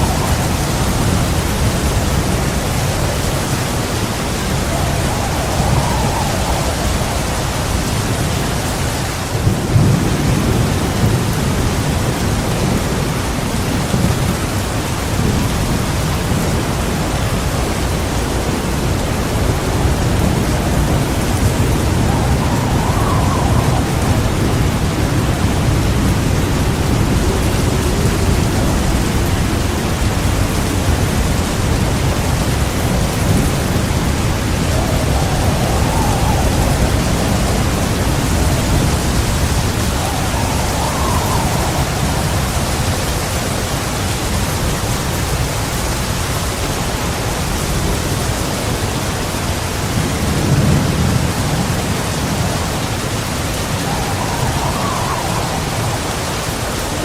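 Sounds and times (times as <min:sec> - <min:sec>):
heavy rain pouring: 0:00.0 - 0:57.0
rolling thunder rumble: 0:00.0 - 0:57.0.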